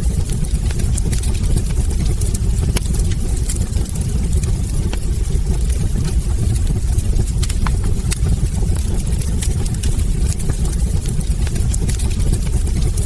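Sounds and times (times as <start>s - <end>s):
fire flames rumbling: 0.0s - 13.0s
logs crackling and popping: 0.0s - 13.0s.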